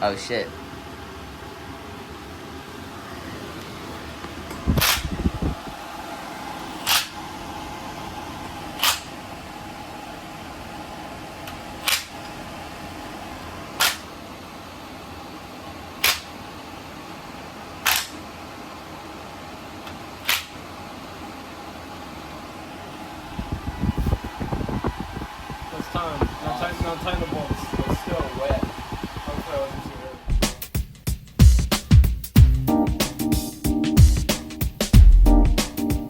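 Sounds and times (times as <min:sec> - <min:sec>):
fan hum: 0:00.0 - 0:36.0.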